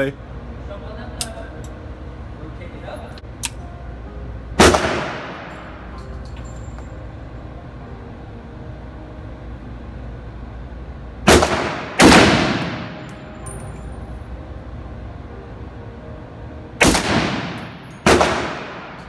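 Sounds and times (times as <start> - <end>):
rifle shots echoing indoors: 4.6 - 5.9, 11.2 - 13.2, 16.8 - 19.0.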